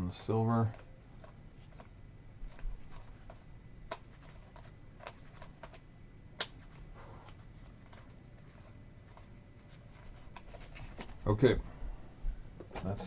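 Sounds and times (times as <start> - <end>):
cards flicking and tapping: 0.6 - 11.2.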